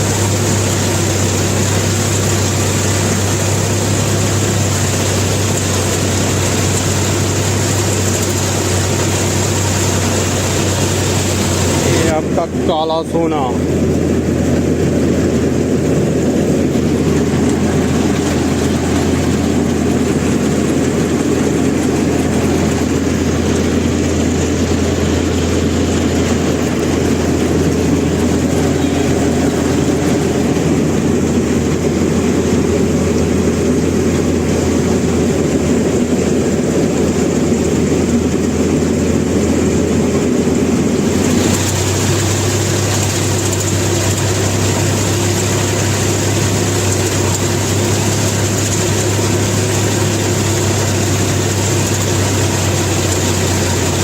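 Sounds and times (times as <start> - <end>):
harvester engine humming: 0.0 - 54.0.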